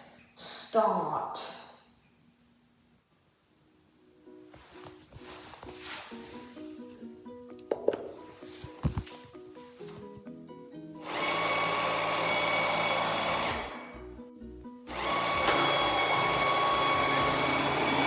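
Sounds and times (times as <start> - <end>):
robot vacuum motor whirring: 11.0 - 13.9, 14.9 - 18.0.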